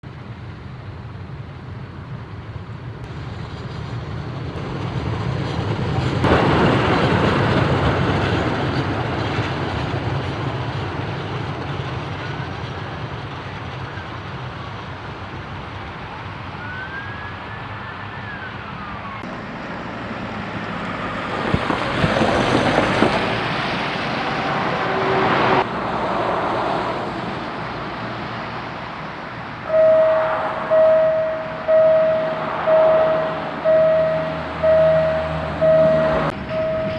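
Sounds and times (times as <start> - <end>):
freight train rumbling: 0.0 - 36.9
faint train squeals: 11.2 - 19.2, 24.1 - 25.6, 29.7 - 36.9.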